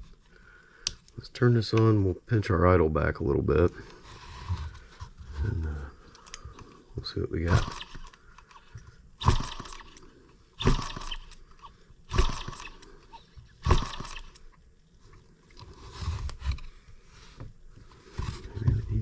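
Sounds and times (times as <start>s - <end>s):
engine being turned over: 7.4s - 10.0s, 10.6s - 14.5s.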